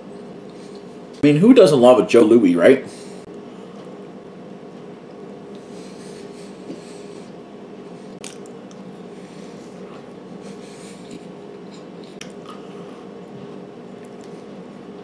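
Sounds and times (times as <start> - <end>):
low room hum: 0.0 - 15.0
person chewing: 8.1 - 14.6.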